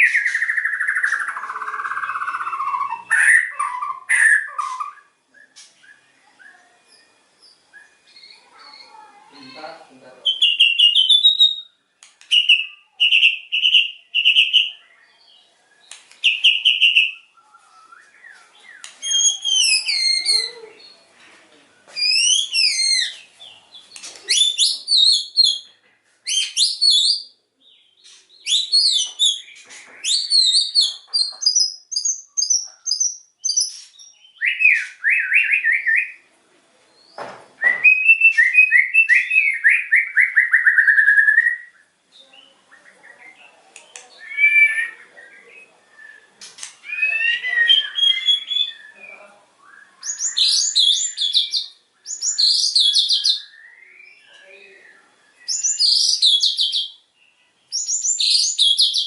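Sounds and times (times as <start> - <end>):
bird singing whistled phrases: 0.0 - 7.1, 10.2 - 14.9, 15.8 - 21.0, 22.0 - 23.2, 24.3 - 25.7, 26.3 - 27.3, 28.4 - 36.2, 37.6 - 41.8, 44.1 - 57.0, 57.7 - 59.0.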